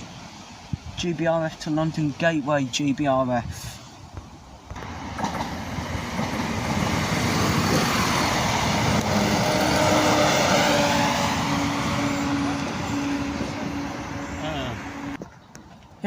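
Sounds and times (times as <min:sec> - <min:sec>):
train rumble and rail noise: 0:00.0 - 0:16.0
steady engine drone: 0:04.8 - 0:15.2.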